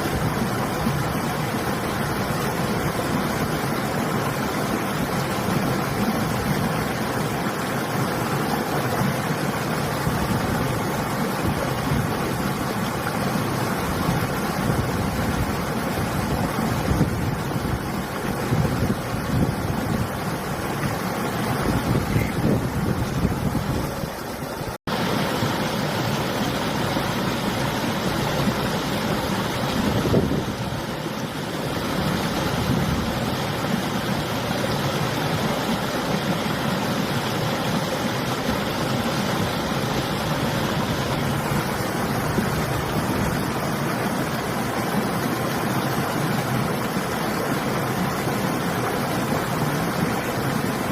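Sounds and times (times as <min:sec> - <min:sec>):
river water rushing: 0:00.0 - 0:50.9
wind blowing against microphone: 0:13.9 - 0:24.7, 0:27.0 - 0:34.9
wind buffeting microphone: 0:21.5 - 0:24.2, 0:29.6 - 0:31.0.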